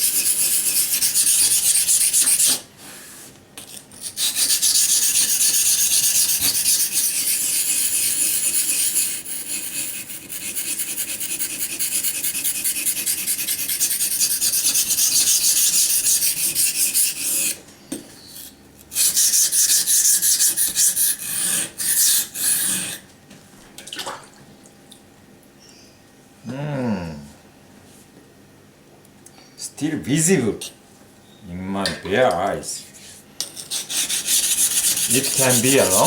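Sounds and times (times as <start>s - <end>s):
knife blade scraping on whetstone: 0.0s - 2.6s, 3.7s - 17.6s, 18.3s - 23.0s, 33.0s - 36.0s.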